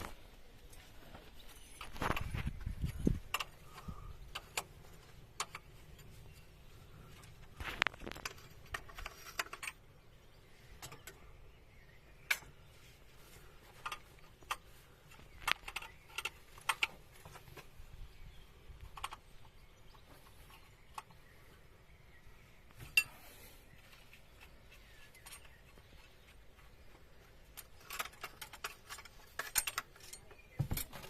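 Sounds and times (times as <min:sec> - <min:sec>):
light metallic clicks and clinks: 0:27.4 - 0:31.0.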